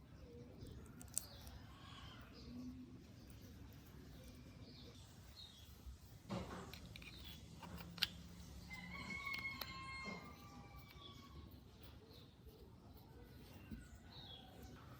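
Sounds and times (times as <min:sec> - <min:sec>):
sharp small clicks: 0:00.6 - 0:01.6, 0:06.6 - 0:12.2.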